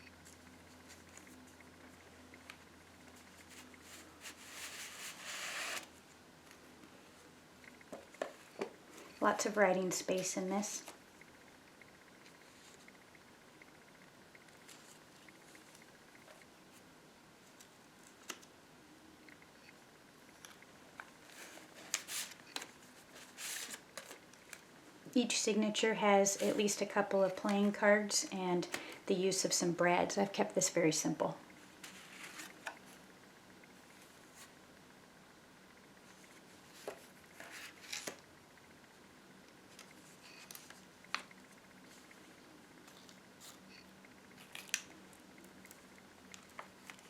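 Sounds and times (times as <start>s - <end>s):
paper pages being handled: 3.1s - 5.9s, 21.2s - 24.6s
paper rustle: 21.2s - 24.6s.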